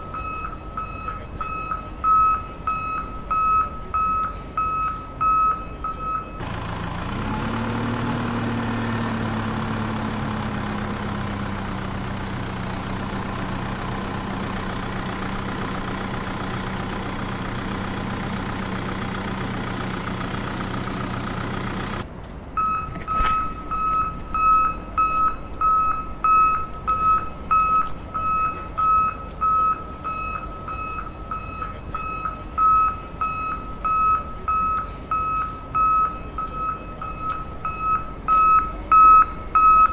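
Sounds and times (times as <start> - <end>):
high electronic reversing beeps: 0.0 - 6.4, 22.6 - 39.9
engine running: 0.0 - 39.9.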